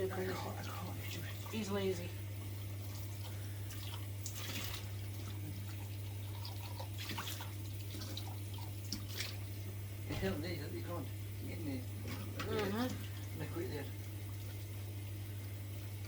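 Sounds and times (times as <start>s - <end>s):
water dripping in sink: 2.4s - 10.2s.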